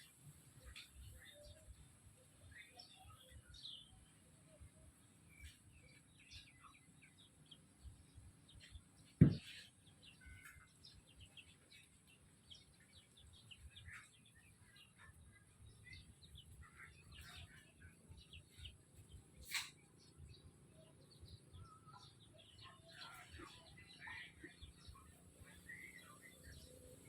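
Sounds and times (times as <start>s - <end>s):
loud thump: 9.2s - 9.4s.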